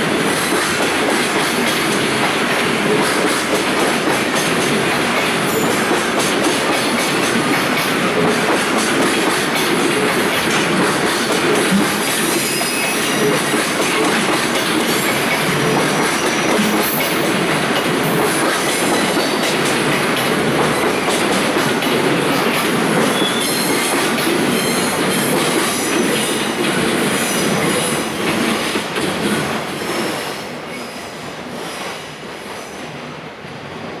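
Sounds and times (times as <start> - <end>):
high wheel squeal: 12.2 - 13.8, 23.0 - 23.9.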